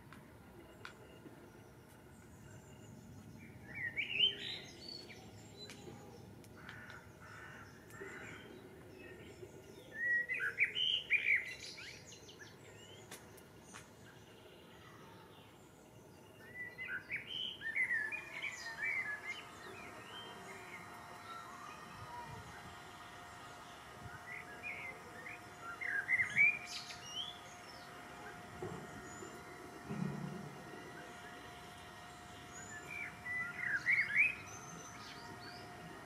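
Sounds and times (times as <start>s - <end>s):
songbird chirping: 0.1s - 36.0s.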